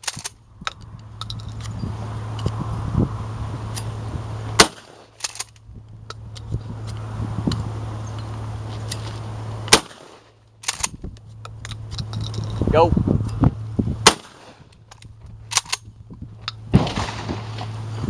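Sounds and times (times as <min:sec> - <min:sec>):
shotgun shots: 0:04.6 - 0:05.2, 0:09.7 - 0:10.3, 0:14.0 - 0:14.7, 0:16.7 - 0:17.8.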